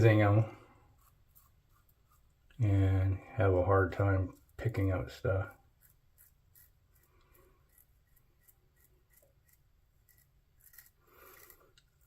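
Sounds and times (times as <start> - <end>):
faint scratching strokes: 0.0 - 12.0.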